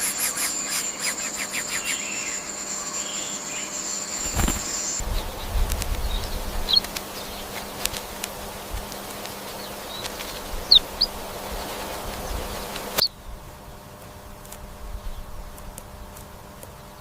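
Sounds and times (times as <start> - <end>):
insect buzz: 0.0 - 17.0
insect clicks: 5.4 - 11.2, 15.5 - 16.8.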